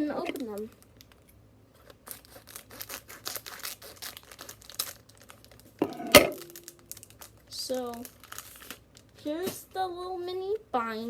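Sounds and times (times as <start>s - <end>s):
packaging torn and crinkled: 0.4s - 9.2s.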